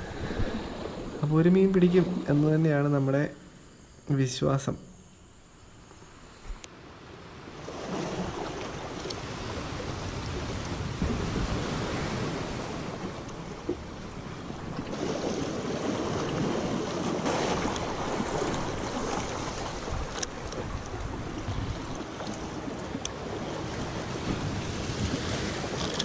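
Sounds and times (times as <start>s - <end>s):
wind buffeting microphone: 0.0s - 2.4s, 7.8s - 26.0s
sea waves on rocks: 7.2s - 26.0s.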